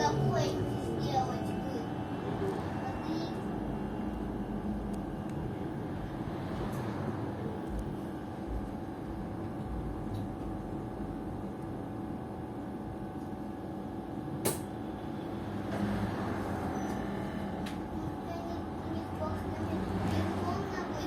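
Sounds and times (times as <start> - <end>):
sharp click: 14.4 - 14.7
trolleybus cabin rumble: 16.8 - 21.0.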